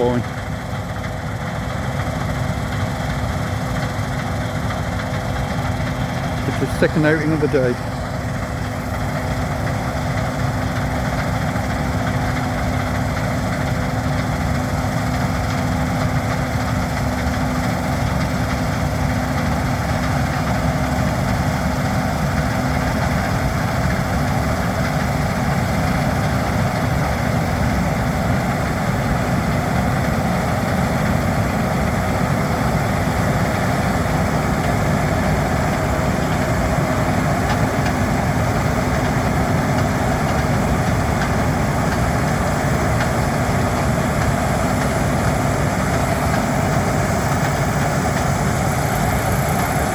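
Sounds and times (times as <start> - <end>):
combine harvester droning: 0.0 - 49.9
steady low hum: 0.0 - 49.9.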